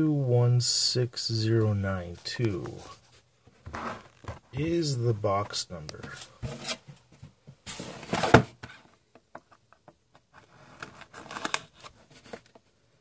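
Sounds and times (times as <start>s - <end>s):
cardboard packaging rustling: 10.4s - 12.6s.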